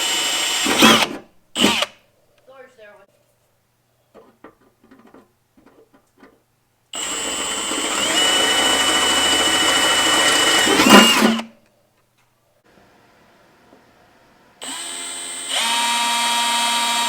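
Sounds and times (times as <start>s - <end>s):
drill motor whining: 0.0s - 1.9s, 7.0s - 11.5s, 14.6s - 17.0s.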